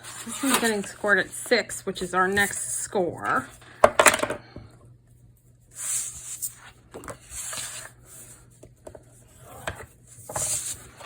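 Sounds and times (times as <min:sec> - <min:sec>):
stylus scraping along paper: 0:00.0 - 0:01.6.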